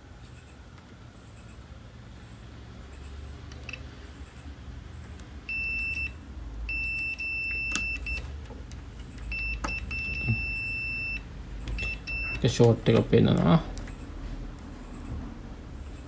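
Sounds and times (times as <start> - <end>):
multimeter continuity beep: 5.5 - 8.3, 9.2 - 12.6.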